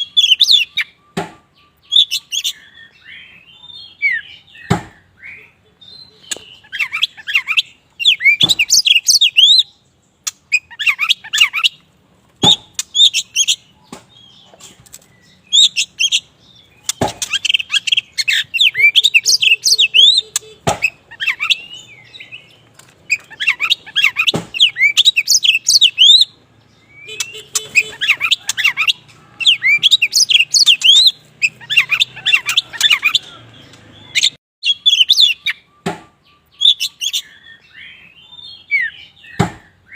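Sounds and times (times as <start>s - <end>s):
bird singing whistled notes: 0.0s - 11.8s, 15.1s - 39.9s
sharp bird clicks: 6.2s - 9.6s, 10.2s - 16.2s.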